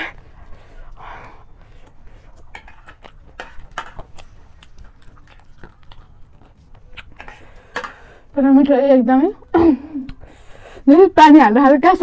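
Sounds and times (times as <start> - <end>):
crunchy food being chewed: 0.0 - 8.8.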